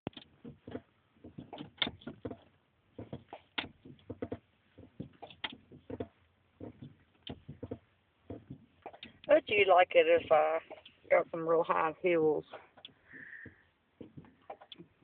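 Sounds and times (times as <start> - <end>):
truck pedals clunking and creaking: 0.1 - 9.4, 12.6 - 15.0.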